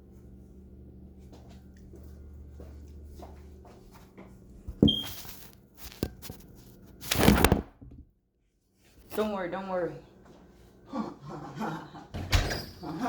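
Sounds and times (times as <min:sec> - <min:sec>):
rustling scrape: 0:04.8 - 0:07.5
short high beep: 0:04.9 - 0:05.2.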